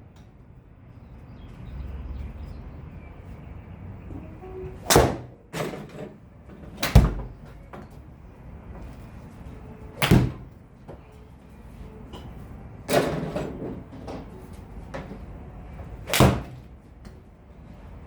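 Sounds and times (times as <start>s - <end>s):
golf club striking ball: 16.1s - 16.7s.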